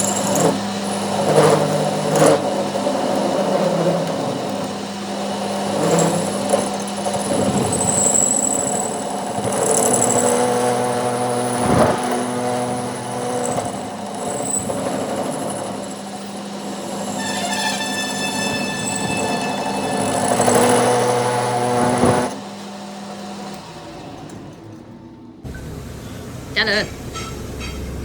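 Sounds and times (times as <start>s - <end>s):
machinery humming: 0.0s - 28.0s
high-pitched whine: 16.5s - 22.4s.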